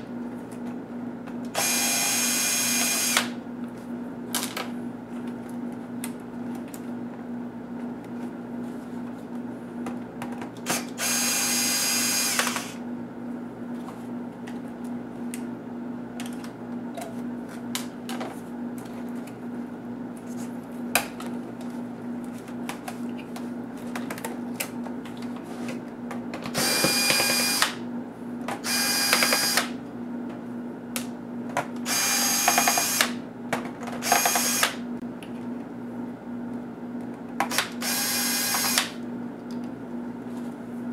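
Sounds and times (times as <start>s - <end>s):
electric screwdriver whirring: 1.5s - 3.4s, 10.7s - 12.8s, 26.5s - 27.8s, 28.6s - 29.8s, 31.8s - 33.2s, 34.0s - 34.8s, 37.5s - 39.0s.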